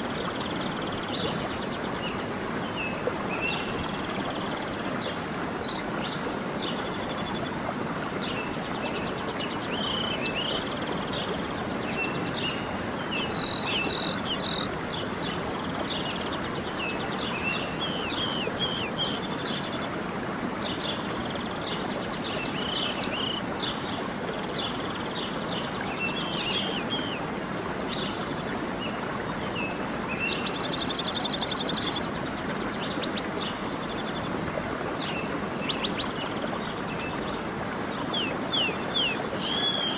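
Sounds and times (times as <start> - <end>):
stream running: 0.0 - 39.9
songbirds chirping: 20.5 - 39.9.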